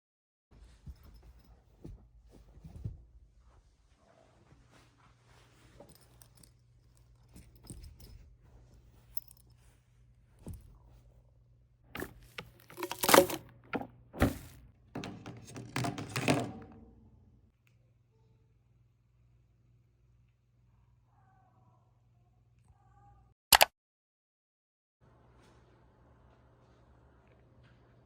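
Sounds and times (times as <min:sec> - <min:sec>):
crinkly rustling: 0:12.0 - 0:14.6.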